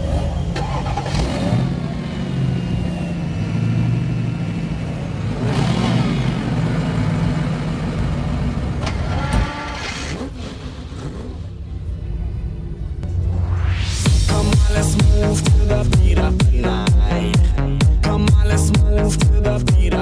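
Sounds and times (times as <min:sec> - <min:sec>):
vehicles driving past: 0:00.0 - 0:15.9
car engines running: 0:00.0 - 0:20.0.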